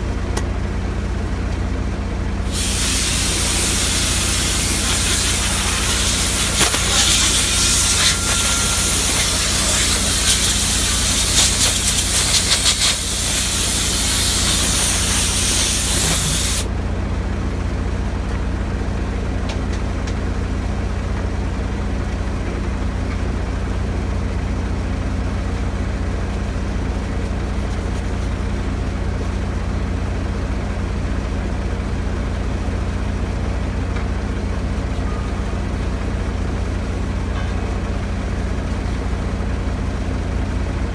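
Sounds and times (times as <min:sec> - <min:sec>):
engine humming: 0:02.4 - 0:16.7
compressed air hissing: 0:02.5 - 0:16.7.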